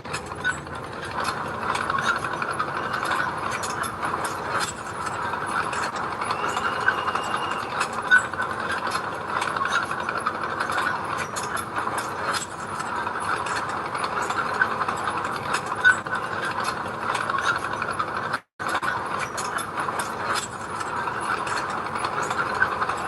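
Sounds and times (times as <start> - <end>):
diesel engine running: 0.0 - 9.6
metallic clicking and clatter: 0.0 - 23.0.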